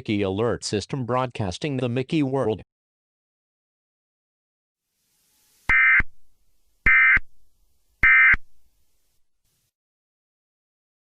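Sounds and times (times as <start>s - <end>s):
short digital data bursts: 5.0s - 6.2s, 6.8s - 7.3s, 8.0s - 8.5s.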